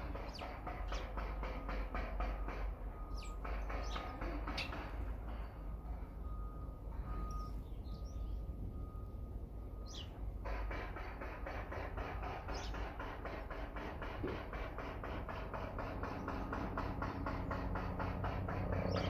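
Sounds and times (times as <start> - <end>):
small birds chirping: 0.0 - 1.4, 3.0 - 4.9, 7.1 - 10.3, 12.5 - 12.8, 18.8 - 19.0.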